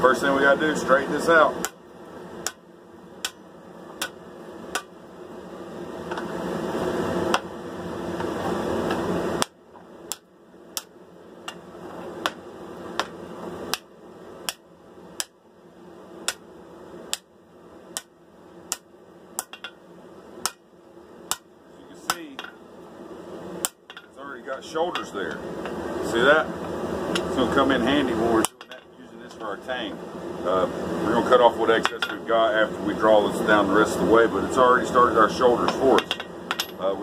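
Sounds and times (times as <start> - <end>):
hammer striking steel on anvil: 3.2 - 4.9, 13.0 - 13.9, 18.7 - 19.8, 21.3 - 21.5, 35.6 - 36.8.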